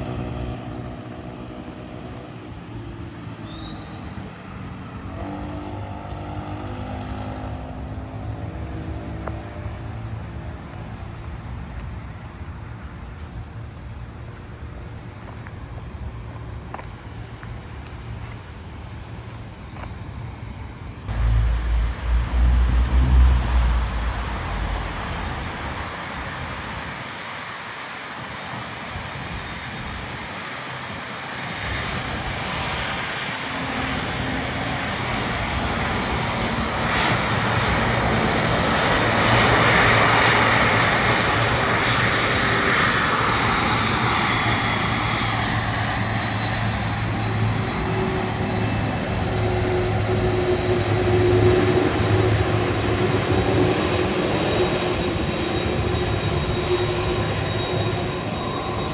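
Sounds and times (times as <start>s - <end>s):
jet engines taxiing: 0.0s - 58.9s
heavy low rumble: 21.1s - 26.4s.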